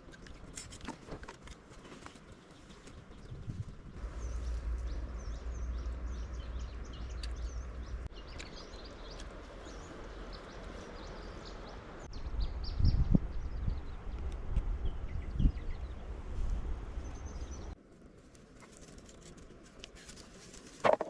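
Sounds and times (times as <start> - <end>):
small birds chirping: 2.1 - 16.1, 16.9 - 17.8
low rumble: 3.3 - 8.4, 9.5 - 17.8.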